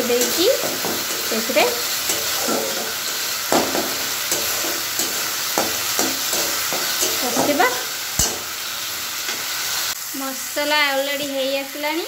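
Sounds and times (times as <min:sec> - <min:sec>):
metal spatula scraping pan: 0:00.0 - 0:08.6
sauce sizzling in oil: 0:00.0 - 0:12.0.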